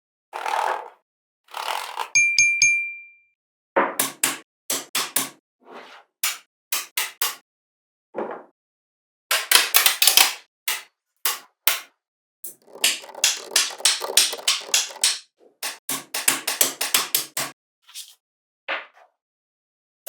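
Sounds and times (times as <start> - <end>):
sharp clicks and knocks: 12.5 - 17.5.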